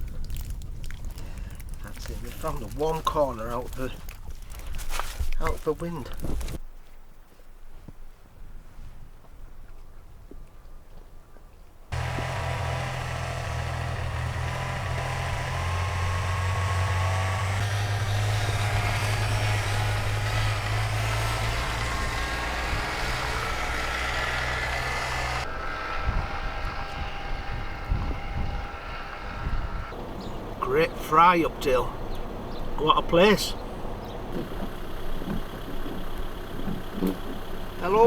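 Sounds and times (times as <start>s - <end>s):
car engine drone: 11.9s - 38.0s.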